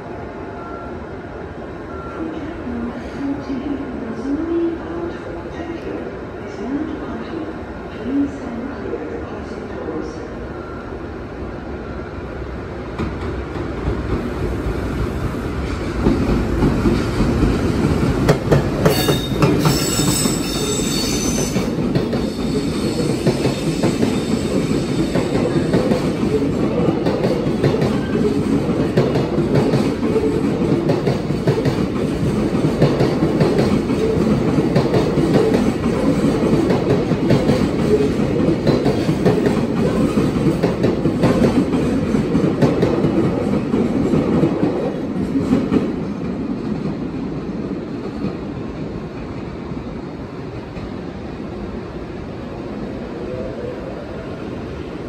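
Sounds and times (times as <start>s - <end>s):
freight train rumbling past: 0.0s - 55.0s
brief high squeal: 19.0s - 21.6s.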